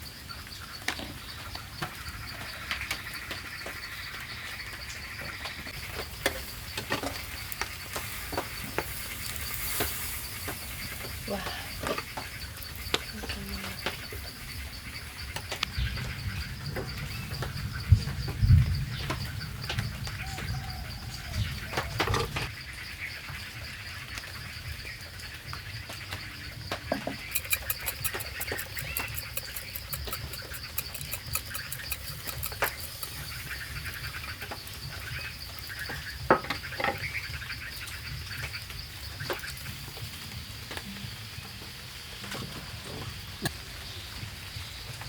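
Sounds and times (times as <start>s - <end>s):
pulsing insect trill: 0.0s - 44.8s
sharp knocks and clicks: 26.9s - 35.3s
bird chirps: 27.1s - 39.8s
fast high ticks: 27.2s - 36.0s.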